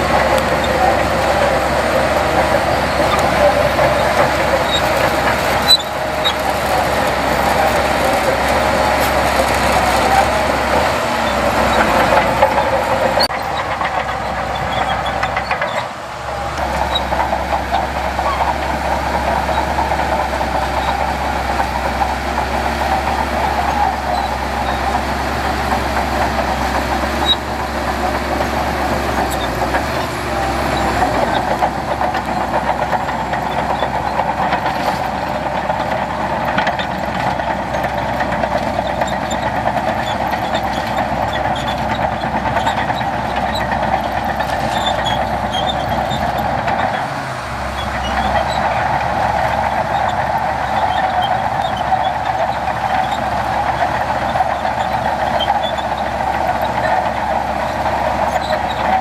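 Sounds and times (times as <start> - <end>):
heavy diesel machinery running: 0.0 - 59.0.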